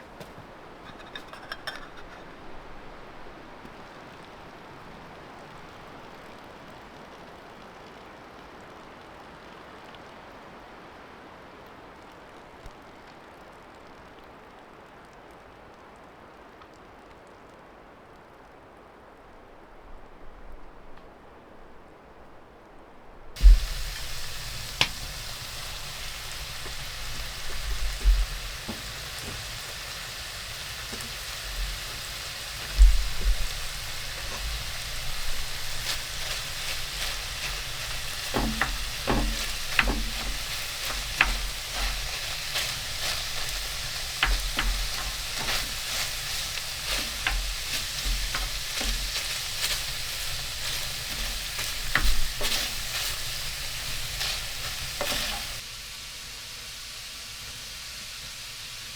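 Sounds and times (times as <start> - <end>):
dull thumps: 23.4 - 55.6
sharp crackles and pops: 23.4 - 55.7
sizzling hiss: 23.4 - 58.9.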